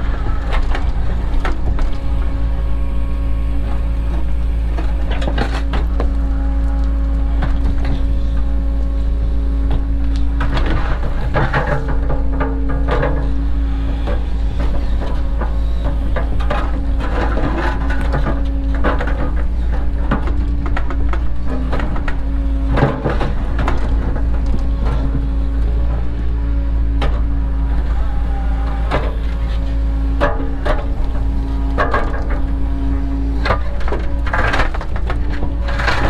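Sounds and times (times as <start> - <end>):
excavator diesel engine running: 0.0 - 36.0
bucket clattering and scraping: 14.0 - 26.1, 28.8 - 36.0.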